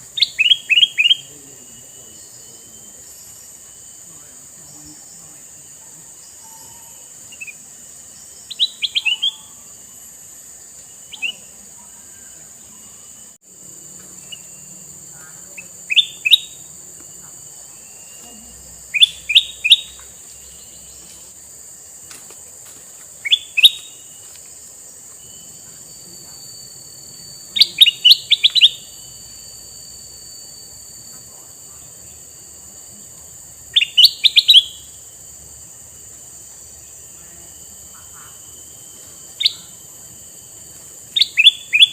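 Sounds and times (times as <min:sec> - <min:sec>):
steady high hiss: 0:00.0 - 0:41.9
bird singing short phrases: 0:00.1 - 0:03.1, 0:08.4 - 0:09.7, 0:11.0 - 0:13.2, 0:27.5 - 0:29.2, 0:39.4 - 0:39.8.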